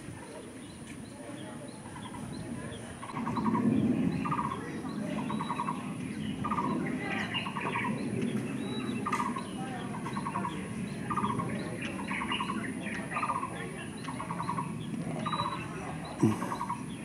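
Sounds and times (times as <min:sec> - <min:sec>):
low background murmur: 0:00.0 - 0:17.0
birds chirping: 0:00.2 - 0:17.0
buzzy trilled calls: 0:16.2 - 0:16.8.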